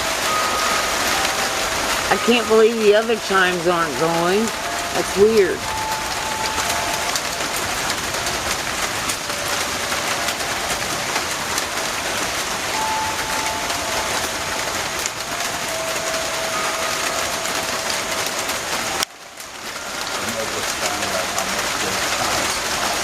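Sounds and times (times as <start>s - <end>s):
heavy rain falling: 0.0s - 23.0s
wind chimes ringing: 0.0s - 23.0s.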